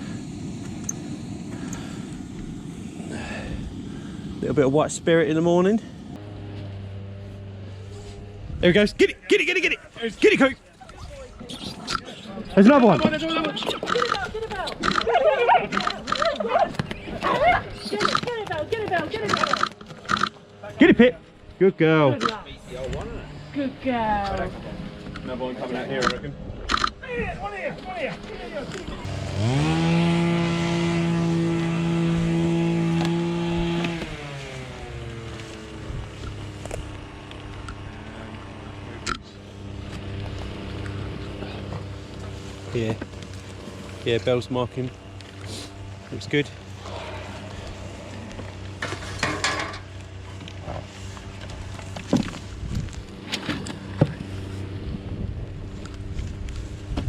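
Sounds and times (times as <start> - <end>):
steady low hum: 0.0 - 57.0
engine revving: 5.3 - 10.4, 17.8 - 24.1, 29.0 - 56.8
sharp clicks: 13.7 - 15.1, 17.9 - 18.4, 19.2 - 20.4, 22.1 - 22.4, 26.0 - 27.0
scraping rustle: 39.4 - 57.0
metal and wood clattering: 48.8 - 52.4.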